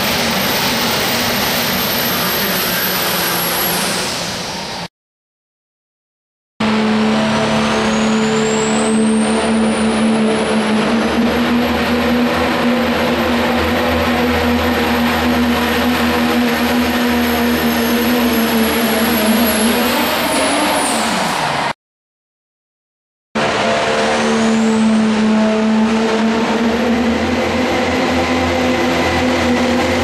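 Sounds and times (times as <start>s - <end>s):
high turbo whine: 0.0s - 4.9s, 6.6s - 21.8s, 23.4s - 30.0s
truck engine at full throttle: 6.6s - 21.7s, 23.4s - 30.0s.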